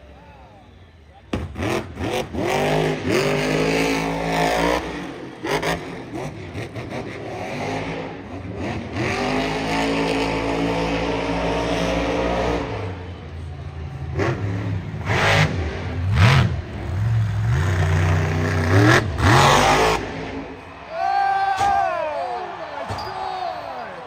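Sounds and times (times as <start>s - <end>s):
truck engine revving hard: 1.4s - 13.1s, 14.0s - 20.6s.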